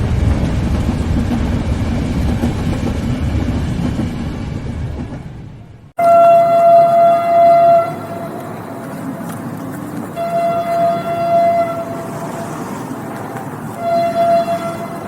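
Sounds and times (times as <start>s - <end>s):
train rumbling: 0.0s - 15.0s
train horn blasts: 6.0s - 8.6s, 10.1s - 12.7s, 13.7s - 15.0s.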